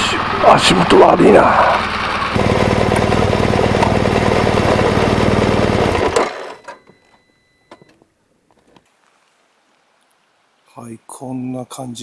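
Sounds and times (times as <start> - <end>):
motorcycle engine idling: 0.0 - 6.2.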